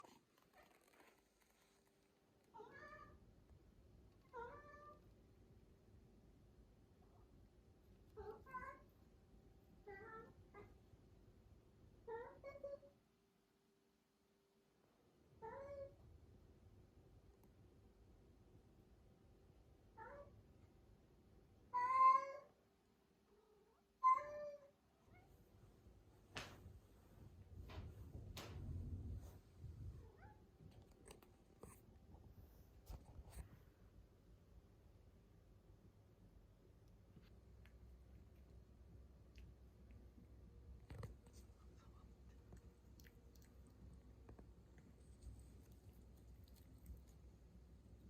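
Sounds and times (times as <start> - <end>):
cat meowing: 21.7 - 22.5.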